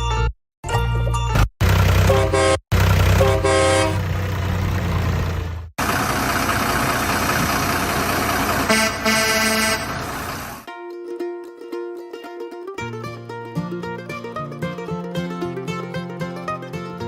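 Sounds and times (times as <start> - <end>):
truck engine rumbling: 1.2 - 10.7
truck horn toots: 2.0 - 4.1, 8.6 - 10.6.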